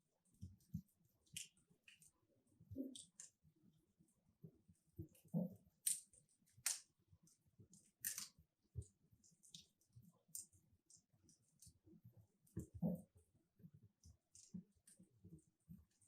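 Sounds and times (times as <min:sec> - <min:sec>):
logs crackling in a fireplace: 0:05.1 - 0:13.1.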